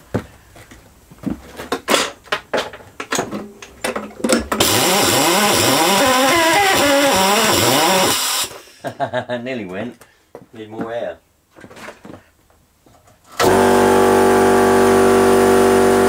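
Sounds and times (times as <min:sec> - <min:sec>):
handling clicks and knocks: 0:00.0 - 0:04.7
lawnmower engine spun by power tool: 0:04.6 - 0:08.7, 0:13.4 - 0:16.0.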